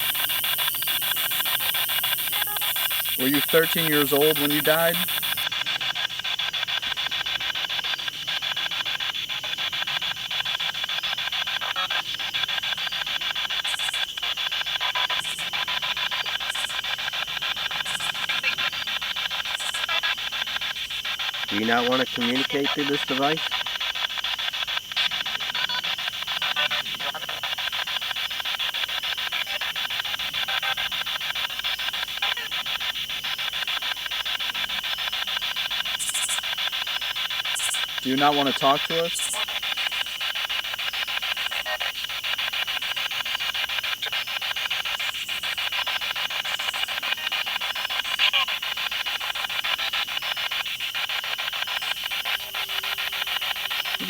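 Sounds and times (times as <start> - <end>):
spirit box radio static bursts: 0.0 - 5.5, 13.4 - 54.0
choppy radio static: 0.1 - 5.4, 21.3 - 23.6, 25.4 - 27.6, 38.0 - 39.6.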